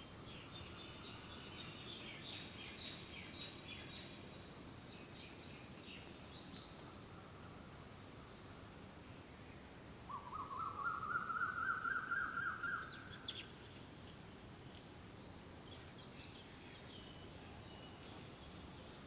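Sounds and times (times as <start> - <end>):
faint bird chirps: 0.0 - 19.0
bird calling repeated notes: 10.1 - 13.0.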